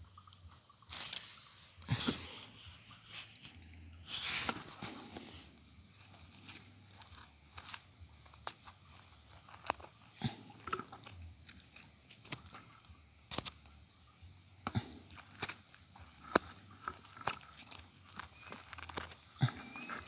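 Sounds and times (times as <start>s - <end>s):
stones and gravel knocking together: 4.4s - 13.7s, 14.6s - 20.0s.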